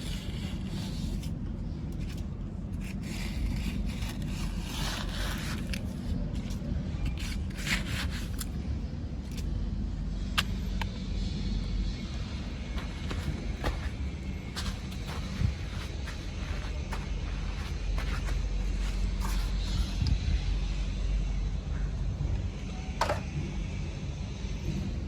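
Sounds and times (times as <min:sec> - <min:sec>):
soil scraping against plastic: 0:00.0 - 0:08.6, 0:12.7 - 0:20.1.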